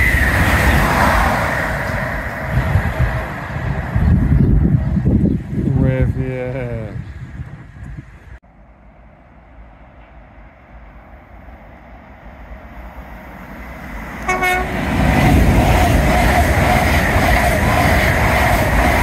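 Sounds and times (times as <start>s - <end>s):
train rumbling past: 0.0s - 19.0s
train horn toot: 14.2s - 15.0s.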